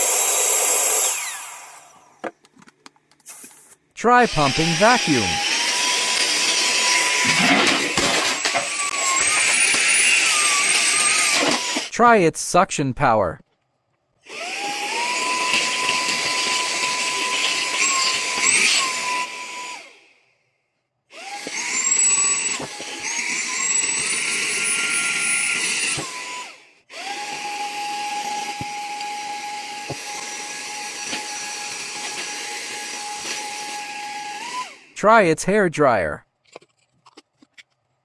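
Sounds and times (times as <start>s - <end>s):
handheld vacuum cleaner whine: 0.0s - 2.2s, 4.3s - 11.9s, 14.3s - 20.3s, 21.1s - 34.9s.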